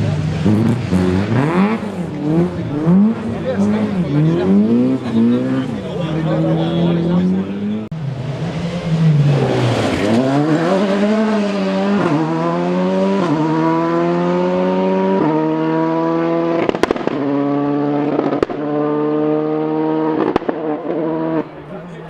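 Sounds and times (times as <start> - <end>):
car engine revving through gears: 0.0 - 21.6
sharp cracks: 16.6 - 17.3.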